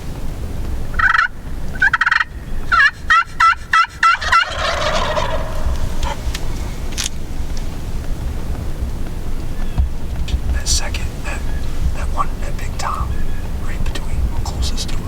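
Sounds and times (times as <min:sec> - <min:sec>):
turkeys gobbling: 0:00.9 - 0:07.4.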